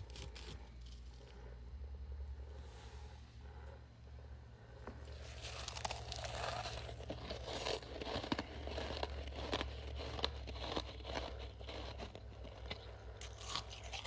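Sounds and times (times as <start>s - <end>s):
frost crunching and crackling: 0.0s - 1.3s, 5.1s - 14.0s.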